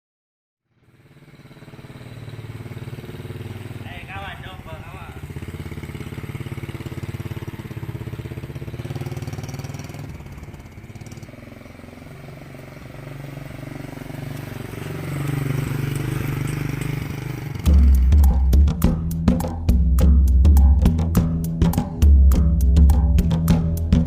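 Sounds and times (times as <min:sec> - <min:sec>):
small motorcycle engine running: 0:00.6 - 0:18.7.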